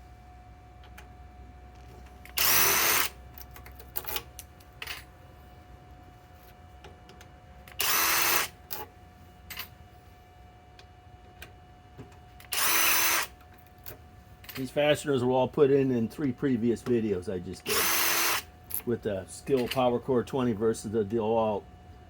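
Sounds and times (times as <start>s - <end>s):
impact driver running: 2.3s - 3.2s, 7.7s - 8.5s, 12.4s - 13.3s, 17.7s - 18.4s.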